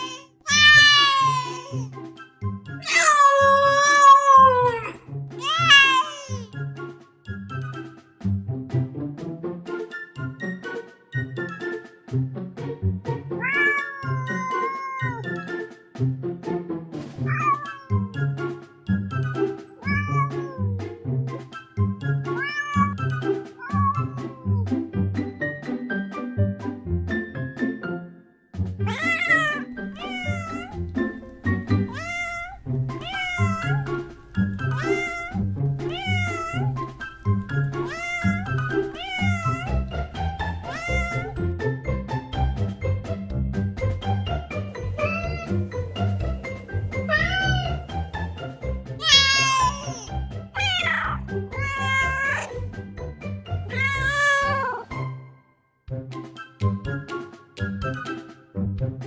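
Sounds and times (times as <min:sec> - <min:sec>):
kitten meowing: 0:00.0 - 0:01.9, 0:02.8 - 0:06.5, 0:13.4 - 0:15.4, 0:17.2 - 0:18.0, 0:19.8 - 0:20.9, 0:22.4 - 0:24.6, 0:28.9 - 0:41.4, 0:44.8 - 0:48.4, 0:49.0 - 0:52.6, 0:53.5 - 0:54.9
background music of plucked notes: 0:00.0 - 0:59.0.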